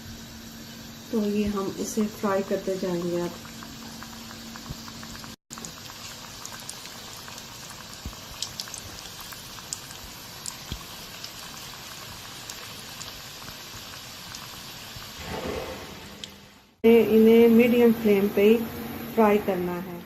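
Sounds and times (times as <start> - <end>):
food deep-frying in oil: 0.0 - 20.0
oil popping and crackling: 1.8 - 15.3.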